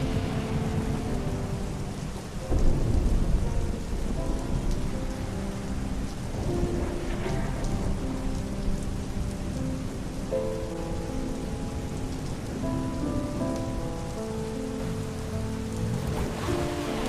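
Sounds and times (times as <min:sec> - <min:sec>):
low rumble of thunder: 0:00.0 - 0:17.0
steady rain falling: 0:00.0 - 0:17.0.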